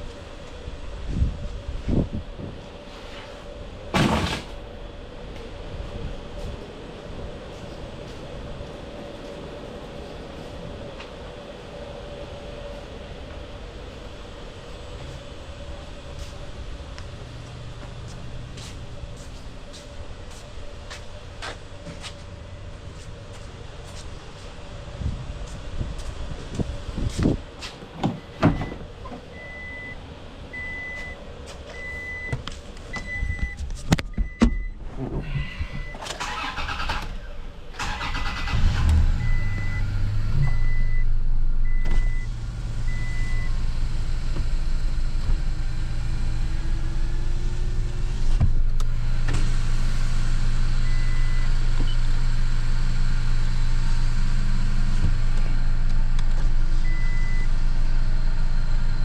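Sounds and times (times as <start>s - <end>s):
vehicle warning chime beeps: 28.2s - 30.0s, 30.6s - 32.4s, 33.0s - 34.8s, 39.2s - 43.6s, 50.8s - 52.0s, 56.8s - 57.6s
engine starting and idling: 35.3s - 44.7s.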